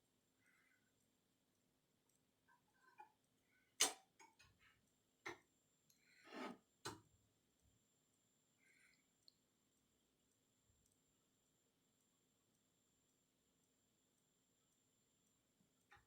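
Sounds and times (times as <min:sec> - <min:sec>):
short scrape: 0:06.2 - 0:06.6.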